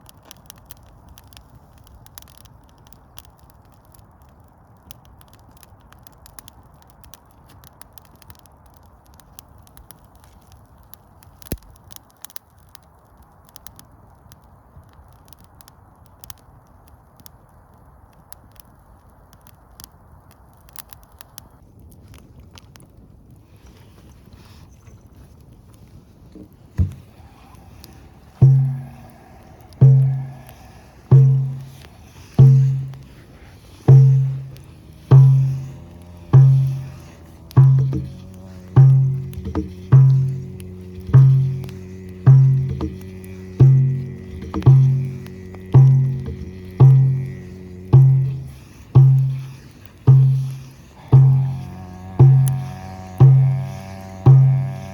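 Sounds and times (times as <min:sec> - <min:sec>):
faint crackling with clicks: 0:00.0 - 0:54.9
low rumble: 0:26.8 - 0:54.9
frame drum beat: 0:28.3 - 0:54.9.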